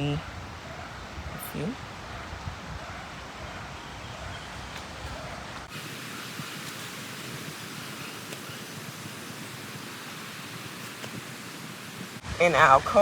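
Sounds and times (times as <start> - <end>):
outdoor background hiss: 3.8 - 13.0.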